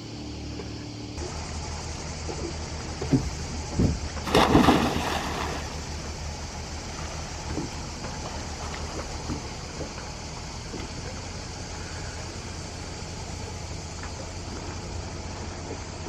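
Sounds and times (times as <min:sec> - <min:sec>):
sea water around a boat: 0:00.0 - 0:16.0
wind: 0:00.0 - 0:16.0
loud water splash: 0:04.2 - 0:05.9.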